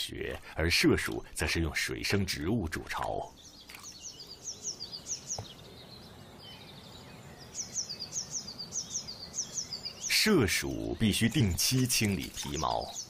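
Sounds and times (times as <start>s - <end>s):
faint outdoor ambience: 0.0s - 13.0s
small bird chirping rapidly: 3.0s - 13.0s.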